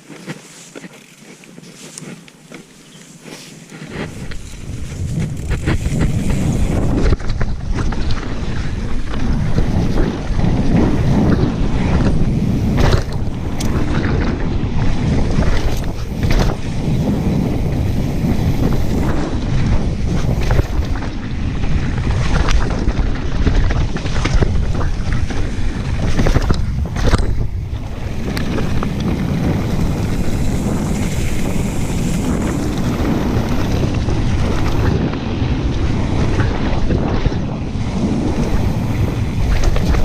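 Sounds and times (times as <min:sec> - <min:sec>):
wind buffeting microphone: 0:03.8 - 0:40.0
bike knocks and rattles: 0:03.9 - 0:35.2.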